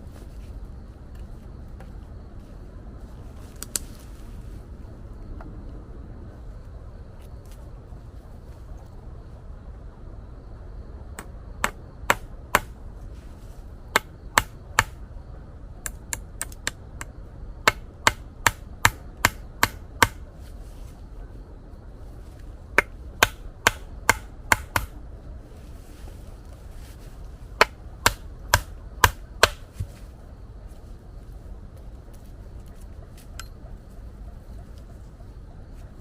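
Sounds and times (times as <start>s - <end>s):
steady low rumble: 0.0s - 36.0s
sharp chopping strokes: 11.2s - 12.8s, 17.7s - 20.2s, 22.8s - 25.0s, 27.6s - 29.9s.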